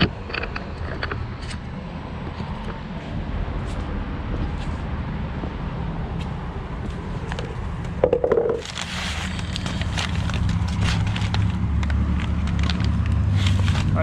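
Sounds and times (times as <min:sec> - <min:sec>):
sharp clicks and scraping: 0:00.0 - 0:01.7.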